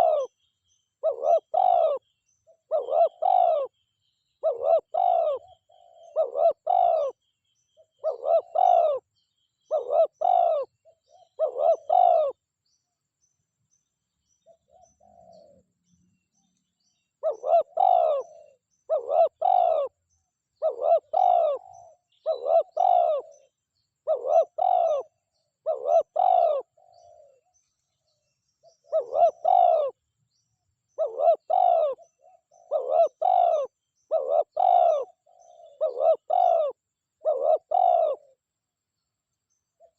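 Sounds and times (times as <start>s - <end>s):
dove cooing: 0.0s - 0.4s, 1.0s - 3.7s, 4.4s - 7.2s, 7.9s - 9.0s, 9.7s - 12.4s, 14.5s - 15.6s, 17.2s - 20.0s, 20.6s - 27.4s, 28.8s - 30.0s, 31.0s - 38.4s.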